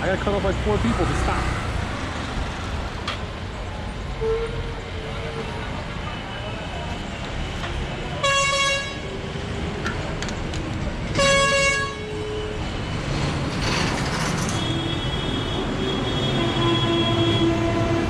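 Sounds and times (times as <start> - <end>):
engine and road rumble: 0.0 - 18.0
vehicle horn honking: 8.2 - 9.0, 11.2 - 12.5, 14.6 - 18.0.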